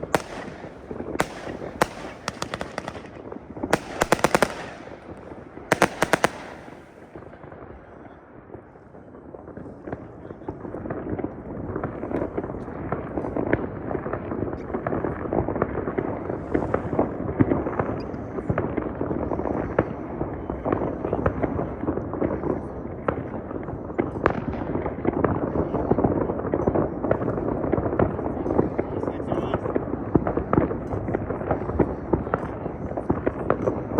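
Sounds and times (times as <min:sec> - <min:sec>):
firecracker bangs: 0:00.0 - 0:07.8
fireworks crackling and popping: 0:00.0 - 0:20.7.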